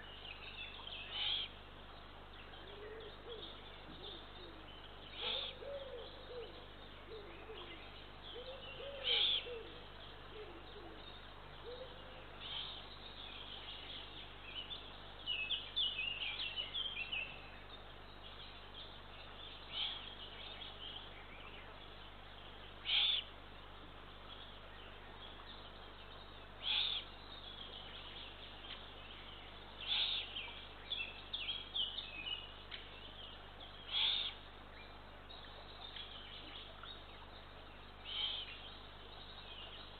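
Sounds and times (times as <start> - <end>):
owl chicks begging calls: 26.6 - 27.1, 33.9 - 34.4.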